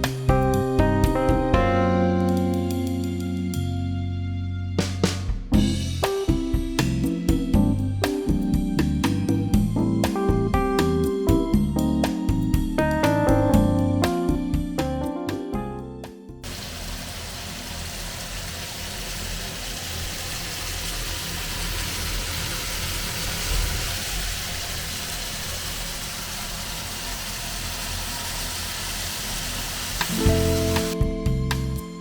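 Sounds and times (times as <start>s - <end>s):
piano music: 0.0s - 4.3s, 5.6s - 16.6s, 30.0s - 32.0s
food sizzling in a pan: 16.5s - 31.0s.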